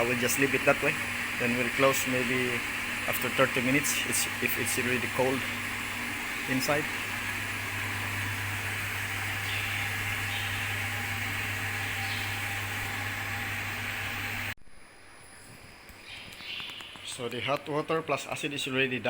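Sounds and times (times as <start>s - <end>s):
water spraying: 0.0s - 14.5s
pump humming: 0.0s - 14.6s.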